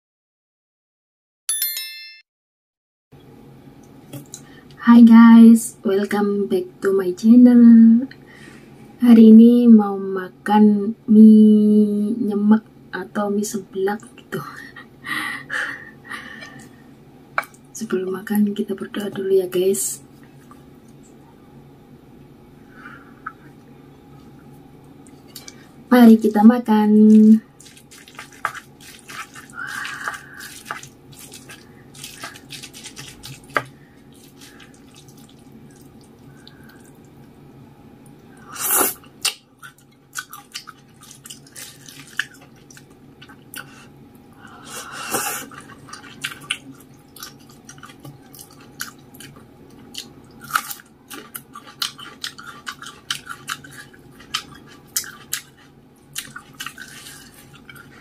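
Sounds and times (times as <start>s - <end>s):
chewing and mouth sounds: 27.1s - 37.4s, 38.0s - 43.8s, 45.3s - 58.0s.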